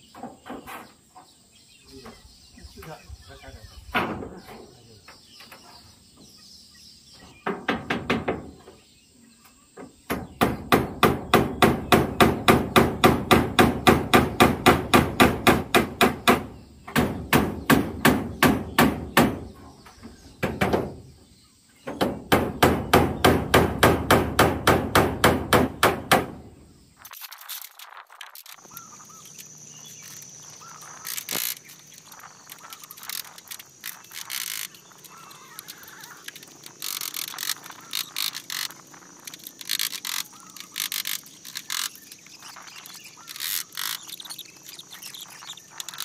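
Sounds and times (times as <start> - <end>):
hammering nails into metal roofing: 3.9 - 4.6, 7.4 - 8.7, 9.8 - 21.1, 21.8 - 26.5.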